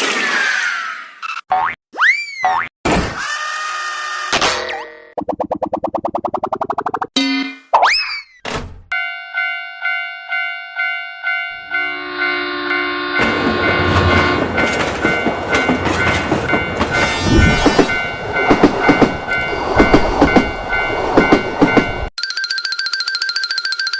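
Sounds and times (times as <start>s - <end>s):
railroad crossing bell dinging: 8.9s - 17.2s, 17.8s - 23.9s
train horn: 11.6s - 14.5s
train passing with loud rumble: 11.9s - 22.1s
wheels clacking over rail joints: 13.2s - 17.2s
fast ringing tone: 22.1s - 23.9s.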